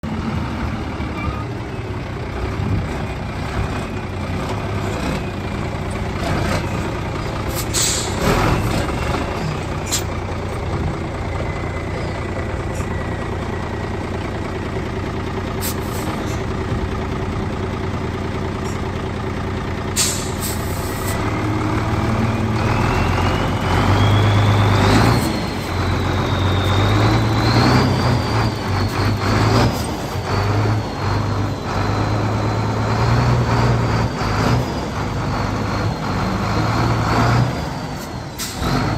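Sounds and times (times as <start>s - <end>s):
diesel truck engine running: 0.0s - 38.9s
air brake hisses: 7.5s - 8.2s, 15.6s - 16.5s, 20.0s - 21.2s, 38.3s - 38.6s.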